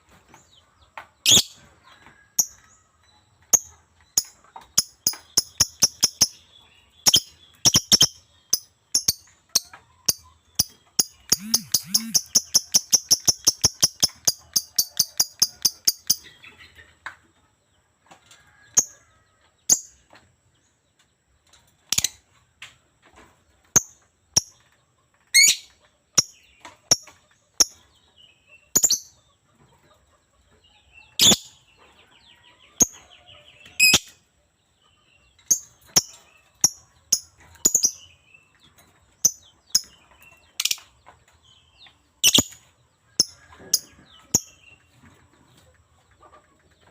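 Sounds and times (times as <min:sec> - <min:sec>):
bird chirping shrilly: 0:11.1 - 0:16.2.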